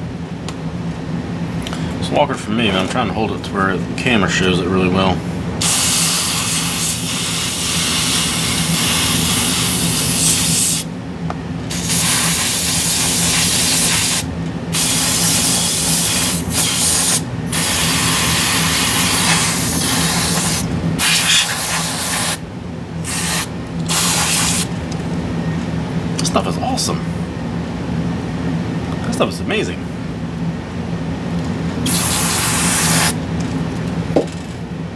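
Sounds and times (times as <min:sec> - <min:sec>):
aerosol spray can hissing: 0:05.6 - 0:10.9, 0:11.7 - 0:22.4, 0:23.1 - 0:24.7, 0:31.9 - 0:33.2.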